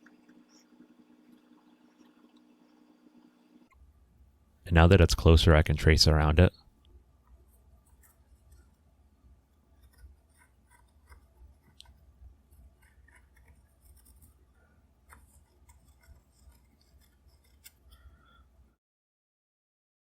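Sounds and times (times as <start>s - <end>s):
low room hum: 0.0s - 18.8s
pencil scratching on wood: 9.7s - 14.4s, 15.0s - 18.1s.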